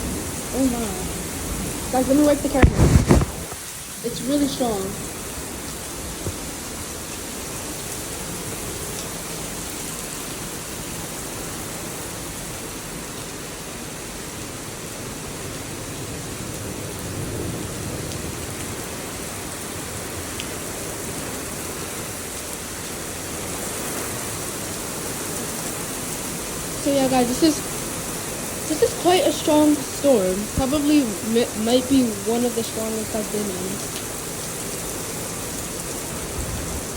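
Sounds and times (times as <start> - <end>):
strong wind: 0.0 - 3.8
heavy rain pouring: 0.0 - 36.9.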